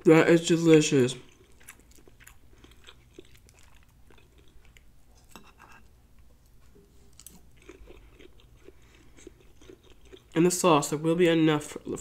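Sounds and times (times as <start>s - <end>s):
person chewing with mouth smacks: 1.2s - 10.4s.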